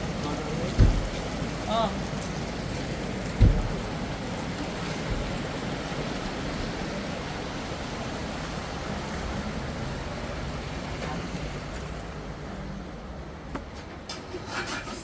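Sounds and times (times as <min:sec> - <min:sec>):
soft thump: 0:00.8 - 0:01.3, 0:03.4 - 0:03.9.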